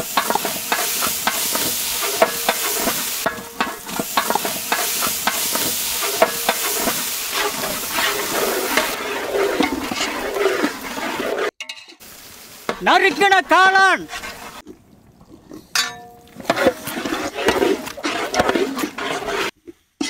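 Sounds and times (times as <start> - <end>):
onions frying in oil: 0.0 - 11.2, 12.0 - 13.3
ladle scraping and knocking pot: 0.0 - 12.0, 15.7 - 19.6.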